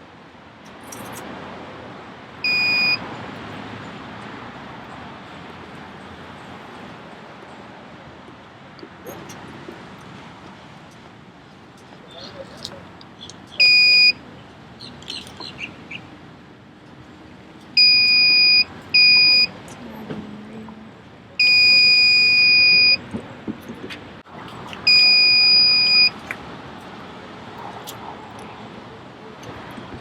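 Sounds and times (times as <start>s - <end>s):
battery tester beeping: 2.4s - 3.0s, 13.6s - 14.2s, 17.8s - 19.5s, 21.4s - 23.0s, 24.9s - 26.2s.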